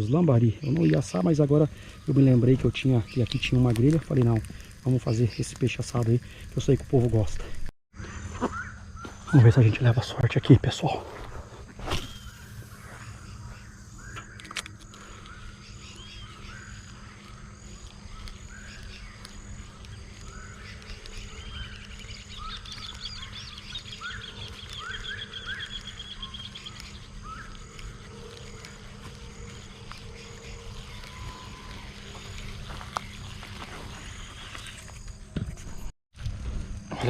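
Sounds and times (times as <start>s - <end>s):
animal chirping calls: 15.3s - 34.5s.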